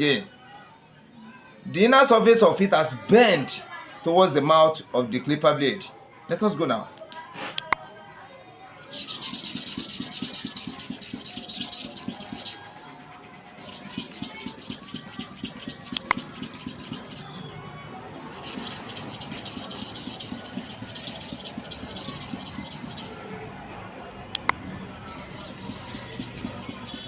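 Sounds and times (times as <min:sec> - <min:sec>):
blade scraping on sharpening stone: 0:08.9 - 0:12.6, 0:13.5 - 0:17.5, 0:18.3 - 0:23.2, 0:25.1 - 0:27.0.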